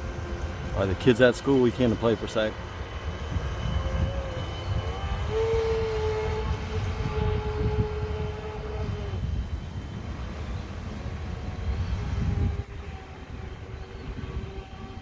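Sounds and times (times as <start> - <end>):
electric motor whining: 2.9 - 10.6.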